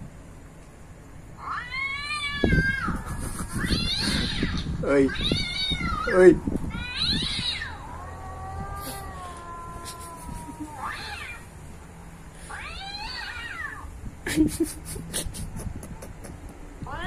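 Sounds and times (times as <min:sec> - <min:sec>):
cat meowing: 0:01.4 - 0:11.5, 0:12.4 - 0:13.9.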